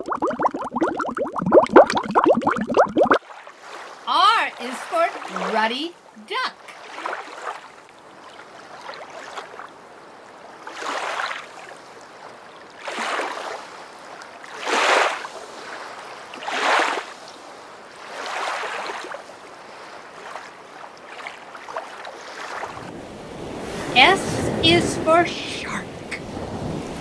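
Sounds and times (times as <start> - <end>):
water splashing: 0.0 - 5.8, 6.7 - 9.7, 12.8 - 13.7, 14.4 - 17.1, 17.9 - 27.0.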